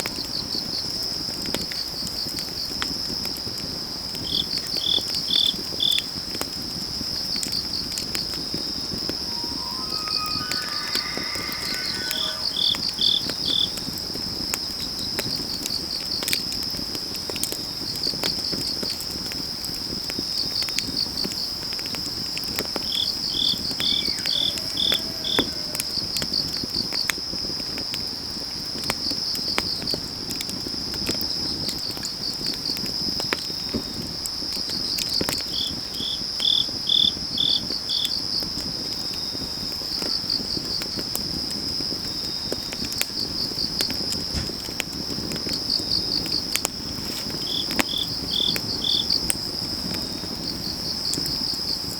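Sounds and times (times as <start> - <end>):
crickets chirping: 0.0 - 51.9
firewood crackling: 0.6 - 36.0, 37.2 - 51.9
insects trilling: 7.0 - 16.3, 20.4 - 30.0, 34.8 - 51.9
low rushing noise: 8.9 - 13.0.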